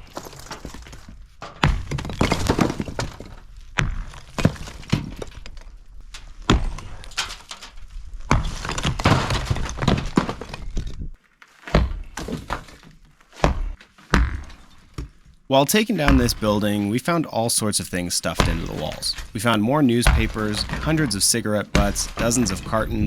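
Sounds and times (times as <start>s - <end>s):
blocks cracking and crumbling: 0.0s - 17.0s, 18.3s - 23.0s
sledgehammer striking block wall: 1.5s - 5.1s, 11.7s - 12.7s, 13.4s - 15.1s, 16.1s - 16.8s, 18.4s - 19.3s, 20.0s - 23.0s.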